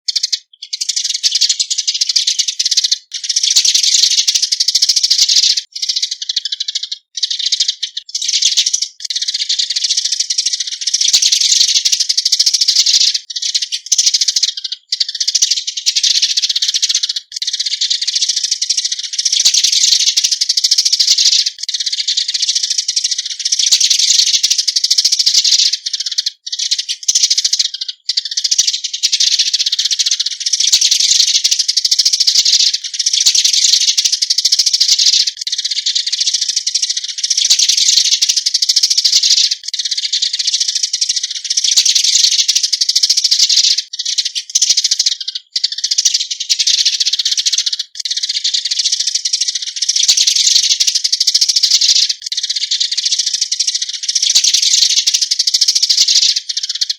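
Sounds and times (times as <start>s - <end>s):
sparrows chirping: 0.0s - 56.9s.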